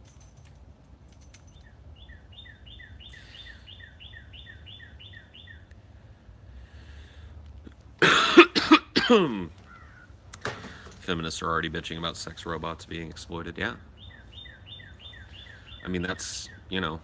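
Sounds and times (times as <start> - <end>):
faint outdoor background noise: 0.0 - 17.0
songbird whistling notes: 1.6 - 5.7, 14.0 - 15.9.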